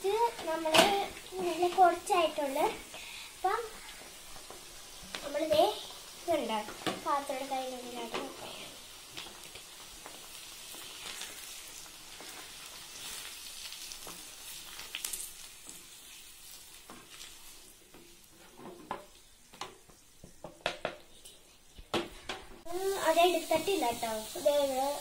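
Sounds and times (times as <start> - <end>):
potatoes sizzling in hot oil: 0.0 - 25.0
wooden spatula knocking and scraping: 17.9 - 21.1.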